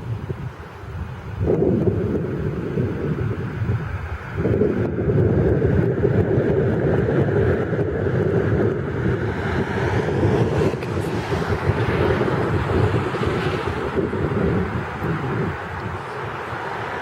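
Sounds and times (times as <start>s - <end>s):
wind gusting over microphone: 0.0s - 17.0s.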